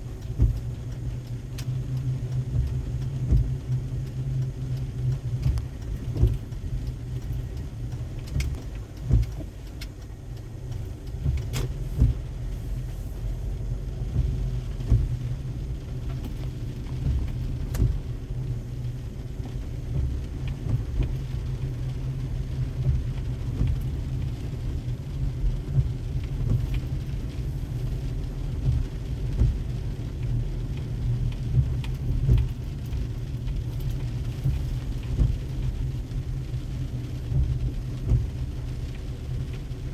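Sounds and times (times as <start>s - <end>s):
road and engine rumble: 0.0s - 39.9s
sharp ticks and knocks: 0.2s - 12.2s.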